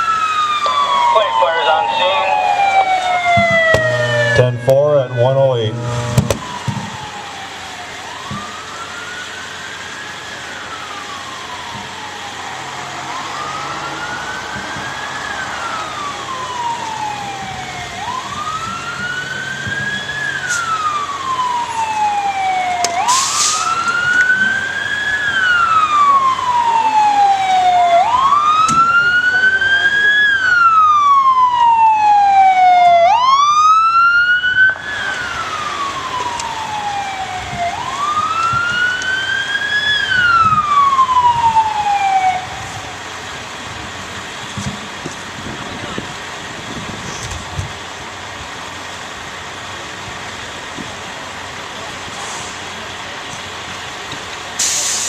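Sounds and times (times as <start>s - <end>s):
siren fast sweeps: 0.0s - 43.0s
siren slow wail: 0.0s - 54.9s.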